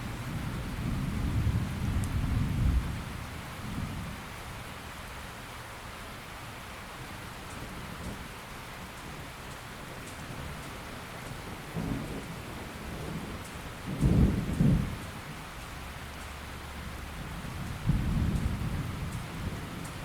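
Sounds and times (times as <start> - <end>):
steady rain falling: 0.0 - 20.0
thunder rumbling: 11.6 - 15.1, 17.2 - 20.0.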